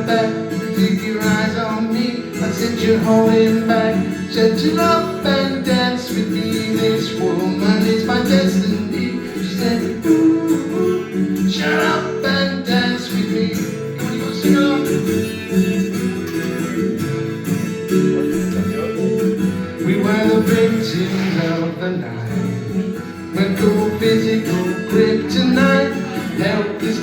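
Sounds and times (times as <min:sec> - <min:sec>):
strummed acoustic guitar: 0:00.0 - 0:27.0.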